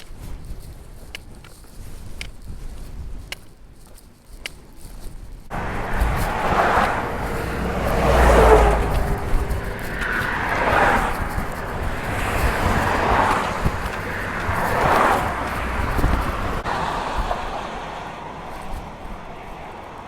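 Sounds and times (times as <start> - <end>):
road traffic passing: 5.5 - 20.0.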